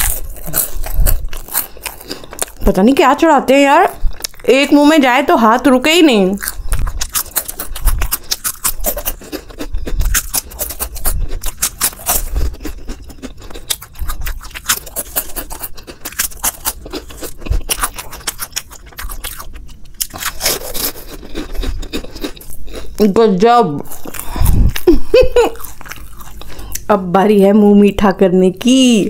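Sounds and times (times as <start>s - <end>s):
crunchy snack being chewed: 0.0s - 2.8s, 3.9s - 4.5s, 6.4s - 23.1s, 23.8s - 26.9s.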